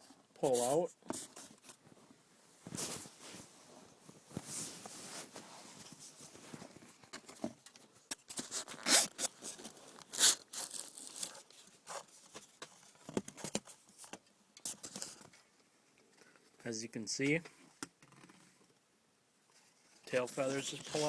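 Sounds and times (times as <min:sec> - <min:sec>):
foam scraping and rustling: 0:02.6 - 0:06.8, 0:20.0 - 0:21.0.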